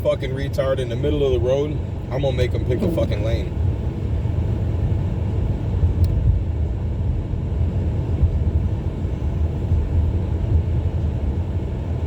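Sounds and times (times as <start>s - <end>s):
tyres and engine rumbling: 0.0s - 12.0s.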